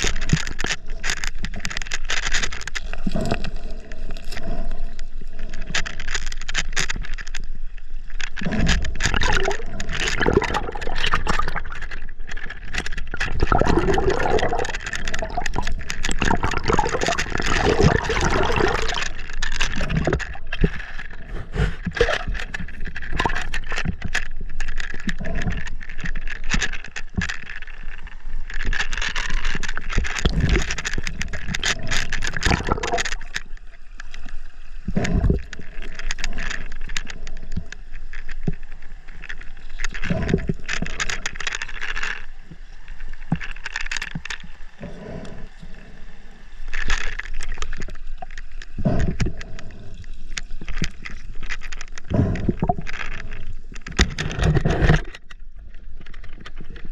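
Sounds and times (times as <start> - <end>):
knocks and scrapes on camera: 19.7 - 24.2, 53.9 - 55.4.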